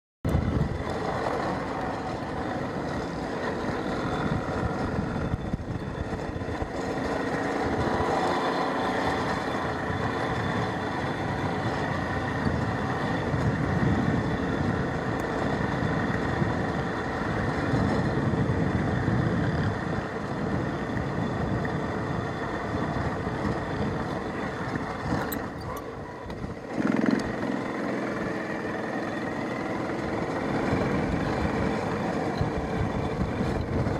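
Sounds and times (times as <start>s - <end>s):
motorcycle engine running: 0.3s - 33.9s.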